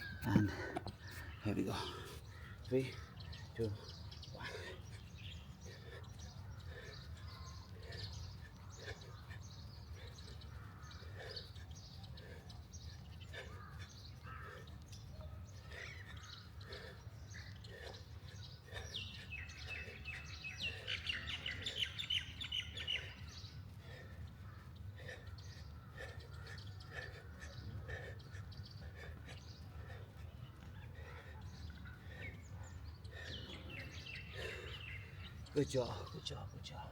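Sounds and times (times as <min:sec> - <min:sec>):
birds chirping and singing: 0:00.0 - 0:36.9.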